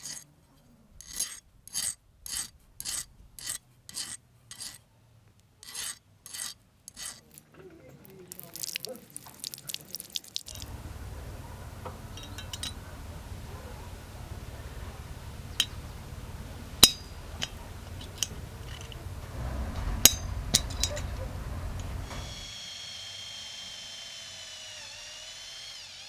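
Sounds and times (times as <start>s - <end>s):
steady low hum: 10.5s - 22.4s
metallic clinks of small metal pieces: 12.1s - 13.4s, 15.0s - 19.2s, 20.0s - 22.2s.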